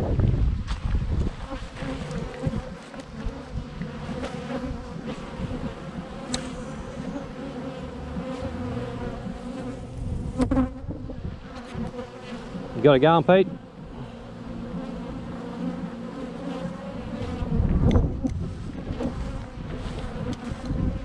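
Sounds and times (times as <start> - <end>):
honeybees buzzing: 1.3 - 21.0
low rumbling bump: 7.8 - 11.5.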